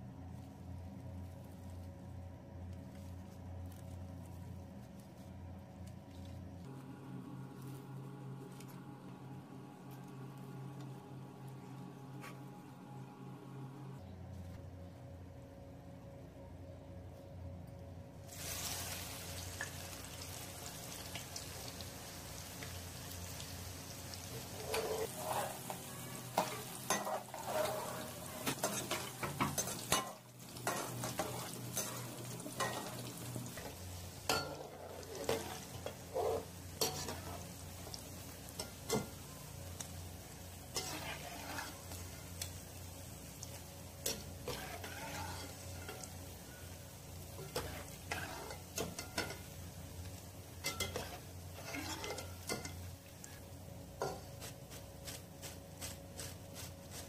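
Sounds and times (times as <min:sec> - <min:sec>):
fritters sizzling in hot oil: 0:18.3 - 0:57.0.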